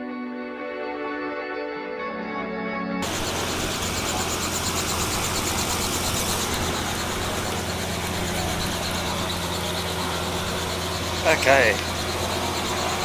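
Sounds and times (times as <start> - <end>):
engine running with pulsing hiss: 3.0 - 13.0.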